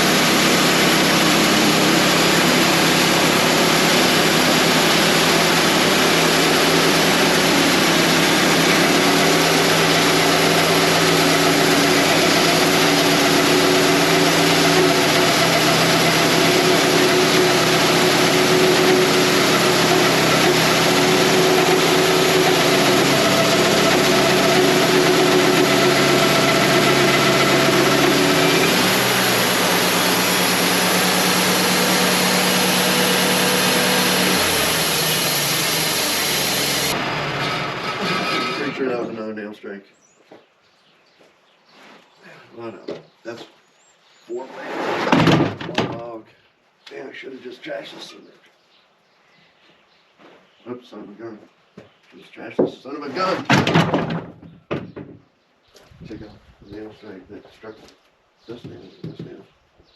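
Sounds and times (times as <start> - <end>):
bandsaw mill sawing log: 0.0 - 39.2.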